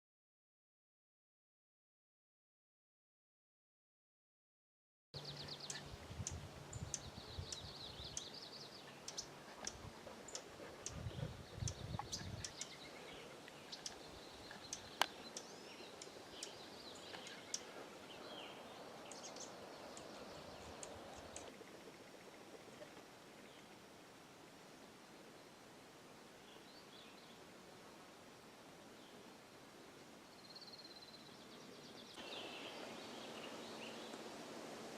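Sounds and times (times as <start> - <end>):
songbirds singing and calling: 5.2 - 23.9, 26.4 - 27.5, 30.2 - 34.3.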